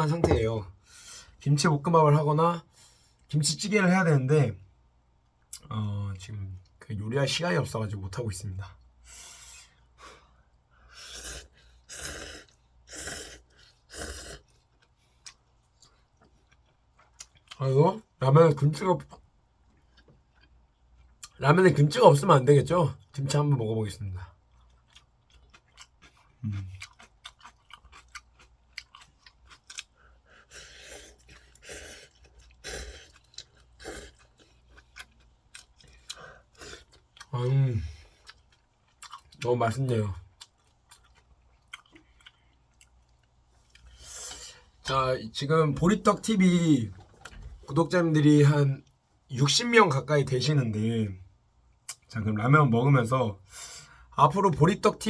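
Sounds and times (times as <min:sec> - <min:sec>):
crisp crunching of chewing food: 0:24.4 - 0:44.1
noisy chewing: 0:24.4 - 0:44.4.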